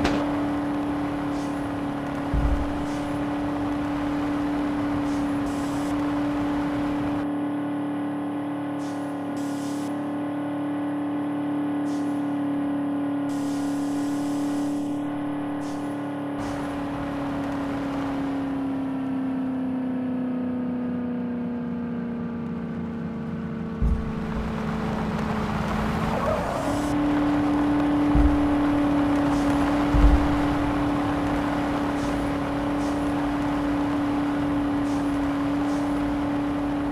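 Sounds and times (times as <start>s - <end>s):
vehicle engine running: 0.0s - 36.9s
short low thumps: 23.8s - 24.9s, 28.1s - 29.1s, 29.7s - 31.0s.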